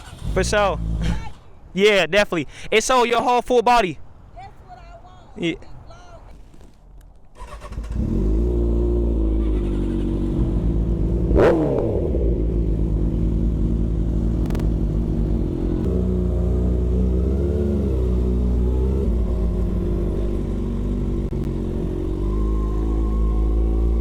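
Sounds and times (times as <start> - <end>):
motorcycle engine running: 7.7 - 24.0.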